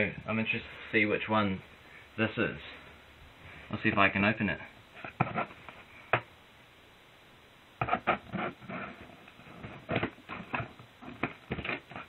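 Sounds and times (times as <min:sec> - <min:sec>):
cardboard rustling and knocks: 0:09.6 - 0:12.0.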